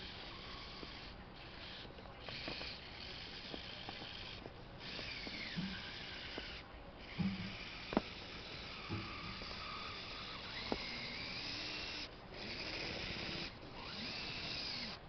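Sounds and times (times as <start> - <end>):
small electric motor whining: 0.0 - 15.0
small clicks: 10.2 - 11.2.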